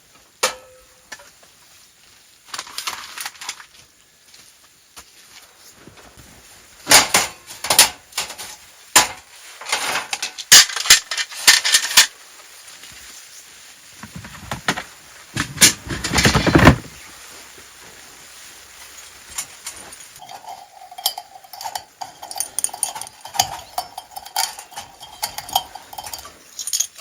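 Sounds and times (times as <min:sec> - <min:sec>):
sharp knocks and clatters: 0:06.9 - 0:12.1, 0:14.0 - 0:17.0, 0:20.2 - 0:27.0
rough scraping noise: 0:14.0 - 0:17.1, 0:19.7 - 0:26.6.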